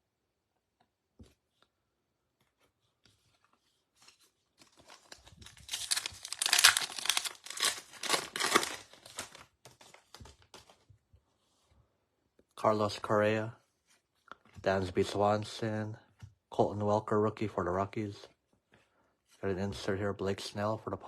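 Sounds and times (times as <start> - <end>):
wrapper being torn and crinkled: 4.6 - 9.5.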